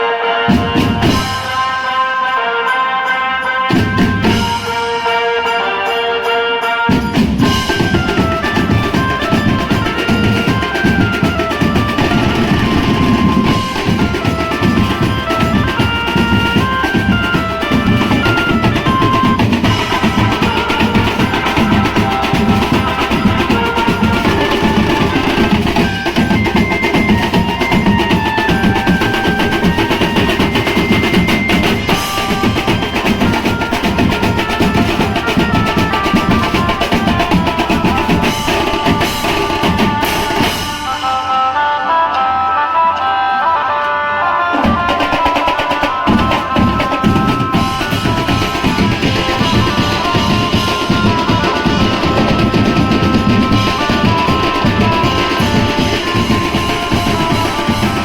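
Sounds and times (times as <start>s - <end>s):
keyboard line: 0.0s - 58.0s
lead melody: 0.0s - 58.0s
drums fast dense beat: 6.9s - 40.8s, 44.6s - 58.0s.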